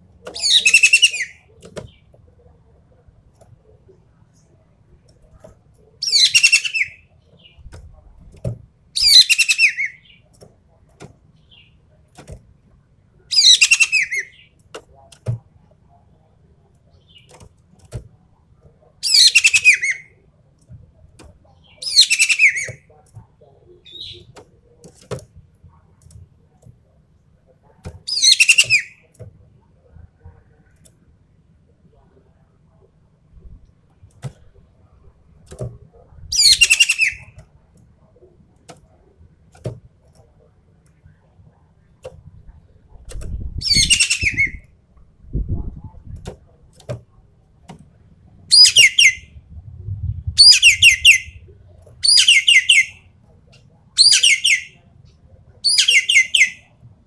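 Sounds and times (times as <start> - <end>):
bird giving harsh calls: 0.4 - 1.4, 6.0 - 7.0, 9.0 - 10.0, 13.3 - 14.4, 28.1 - 29.0, 36.3 - 37.2, 43.6 - 44.6, 48.5 - 49.3, 50.4 - 51.4, 52.0 - 53.0, 54.0 - 54.8, 55.6 - 56.6.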